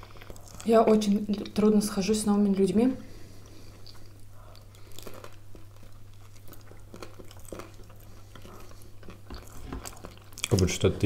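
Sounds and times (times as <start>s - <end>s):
crunchy chewing: 0.0s - 1.6s, 3.4s - 11.0s
faint low hum: 0.0s - 11.0s.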